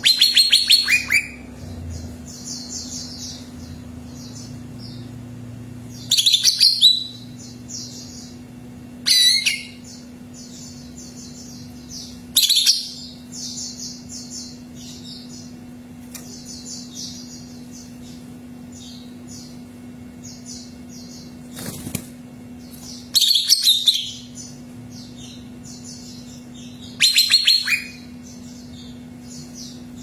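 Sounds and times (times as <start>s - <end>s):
rapid high bird chirping: 0.0s - 5.2s, 5.8s - 15.6s, 16.2s - 30.0s
bird singing ringing phrases: 0.0s - 21.5s, 22.4s - 30.0s
steady low hum: 0.0s - 30.0s.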